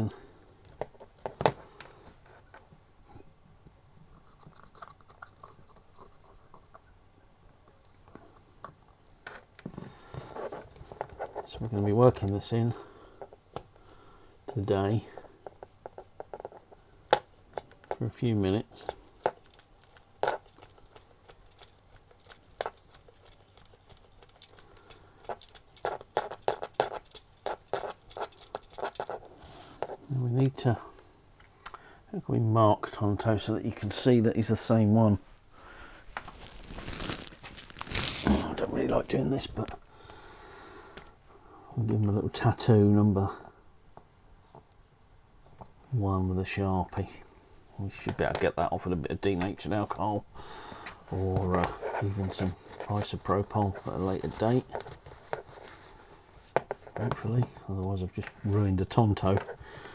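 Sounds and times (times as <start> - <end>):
faint scratching and rubbing: 34.7 - 39.9, 51.0 - 59.6
tissue rubbing: 35.7 - 39.9.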